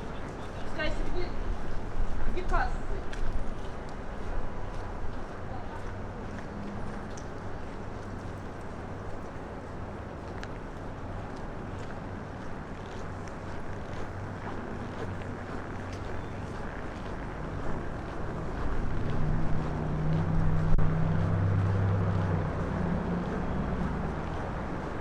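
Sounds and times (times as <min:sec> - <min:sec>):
wind buffeting microphone: 0:12.0 - 0:25.0.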